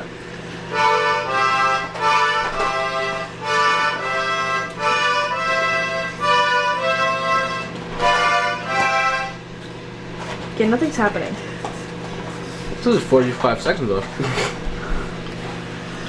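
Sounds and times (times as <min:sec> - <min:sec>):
microwave oven humming: 0:00.0 - 0:16.0
music with reedy melody: 0:00.8 - 0:09.4.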